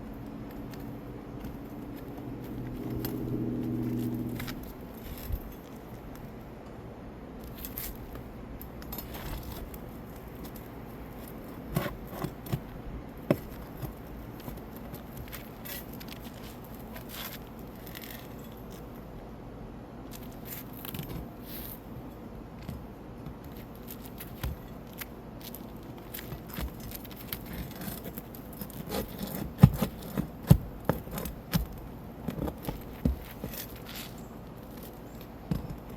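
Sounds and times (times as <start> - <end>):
metal tool scraping on shingles: 11.2 - 12.7, 26.3 - 34.9.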